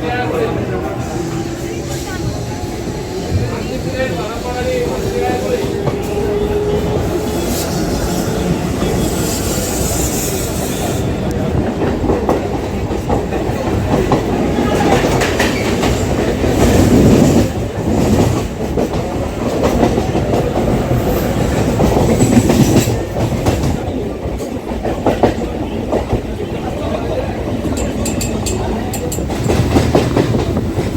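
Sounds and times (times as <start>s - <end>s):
train wheels clattering on rails: 0.0s - 30.9s.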